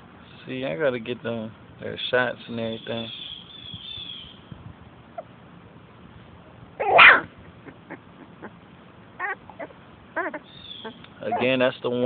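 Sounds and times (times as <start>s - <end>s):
loud sneeze: 6.8s - 7.2s.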